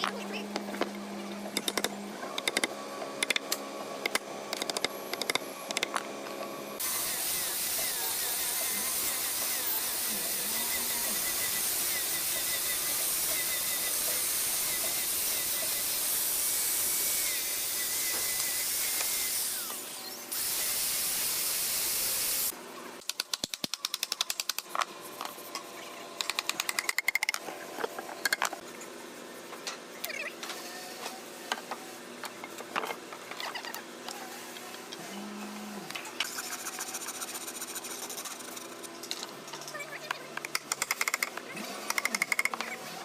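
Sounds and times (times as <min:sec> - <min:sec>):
power tool running with hiss: 0:06.7 - 0:22.6.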